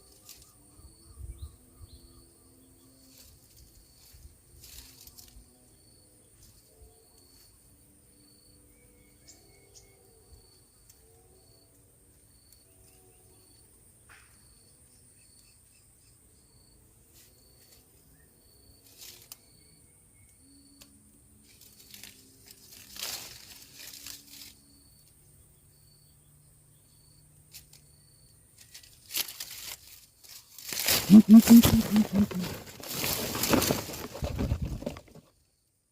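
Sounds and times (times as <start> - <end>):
crickets chirping: 0.0 - 35.9
steady high insect hum: 0.0 - 35.9
rustling and crinkling: 3.1 - 5.4, 21.5 - 24.6, 28.6 - 35.4.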